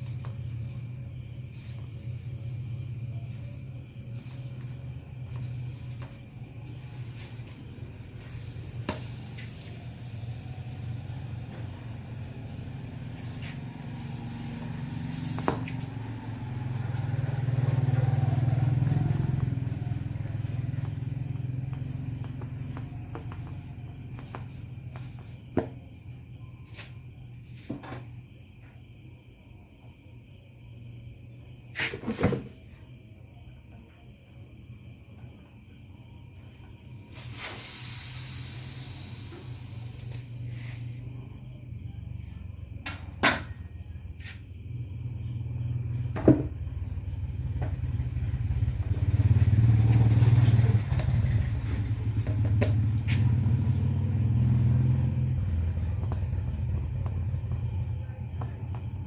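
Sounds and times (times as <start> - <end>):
insects trilling: 0.0 - 59.0
brief hiss: 37.1 - 40.2.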